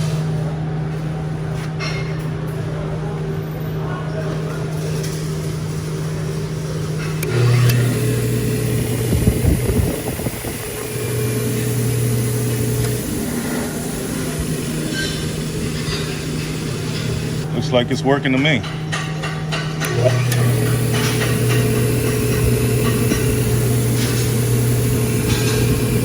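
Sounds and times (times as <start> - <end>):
bench grinder motor humming: 7.2 - 17.4, 19.8 - 26.0.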